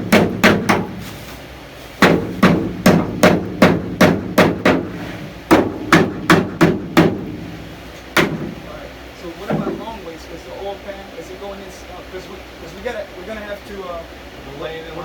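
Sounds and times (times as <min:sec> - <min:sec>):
hammer banging nails into wood: 0:00.0 - 0:01.0, 0:02.0 - 0:07.4, 0:08.2 - 0:08.6.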